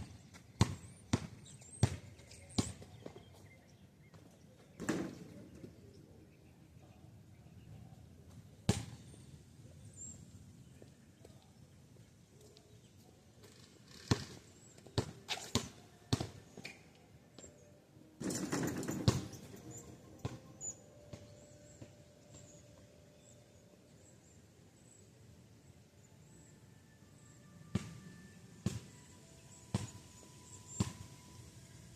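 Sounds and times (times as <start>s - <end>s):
basketball thudding on pavement: 0.6s - 3.2s, 18.3s - 19.4s, 28.6s - 28.9s
faint high bird chirps: 19.2s - 31.9s.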